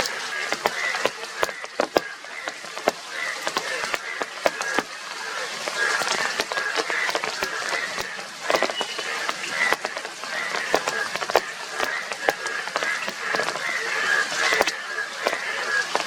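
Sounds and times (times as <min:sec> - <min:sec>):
bullfrogs croaking: 0:00.0 - 0:16.0
rain ticking: 0:00.0 - 0:16.0.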